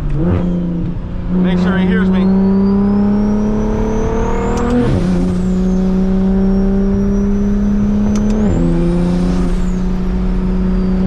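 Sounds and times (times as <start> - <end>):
car engine pulling: 0.0 - 11.0
high turbo whine: 0.0 - 11.0
gearshift click: 4.4 - 4.9, 8.0 - 8.6.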